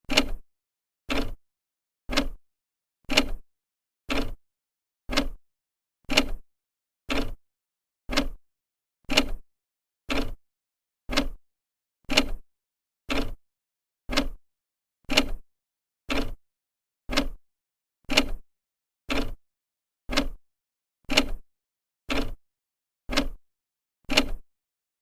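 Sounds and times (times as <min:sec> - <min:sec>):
clock ticking: 0:02.1 - 0:02.4, 0:04.1 - 0:04.4, 0:05.1 - 0:05.4, 0:07.1 - 0:07.4, 0:08.1 - 0:08.4, 0:10.1 - 0:10.4, 0:11.1 - 0:11.4, 0:13.1 - 0:13.4, 0:14.1 - 0:14.4, 0:17.1 - 0:17.4, 0:20.1 - 0:20.4, 0:22.1 - 0:22.4, 0:23.1 - 0:23.4.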